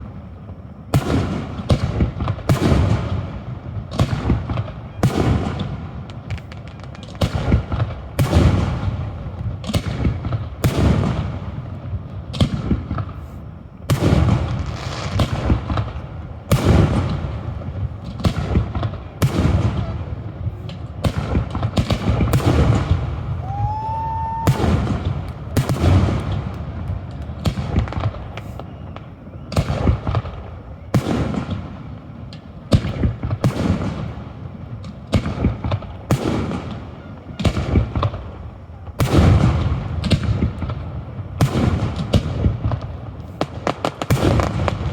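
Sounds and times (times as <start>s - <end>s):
firework shells booming: 0.0s - 44.9s
rising firework whistle: 22.4s - 30.2s.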